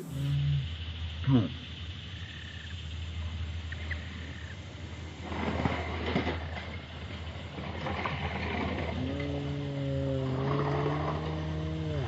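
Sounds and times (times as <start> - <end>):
steady low hum: 0.0 - 12.0
toy motorcycles rattling down track: 5.2 - 12.0.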